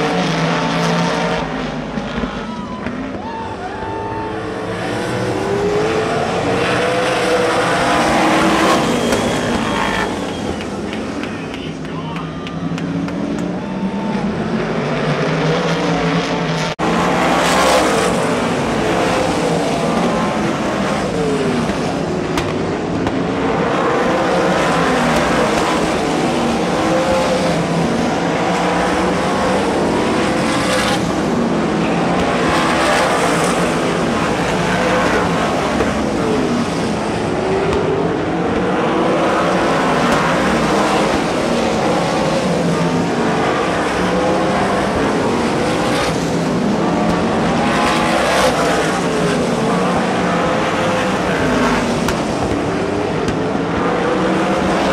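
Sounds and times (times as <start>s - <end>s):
racing car engines: 0.0s - 54.9s.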